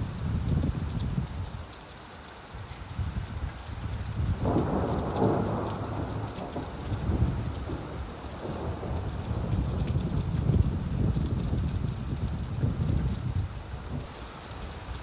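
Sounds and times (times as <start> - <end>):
rainfall: 0.0 - 15.0
thunder rumbling: 4.3 - 14.1.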